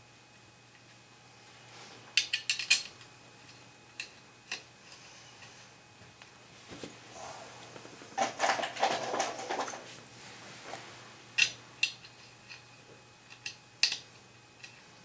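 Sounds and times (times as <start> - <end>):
small metal objects clattering: 8.2 - 9.8.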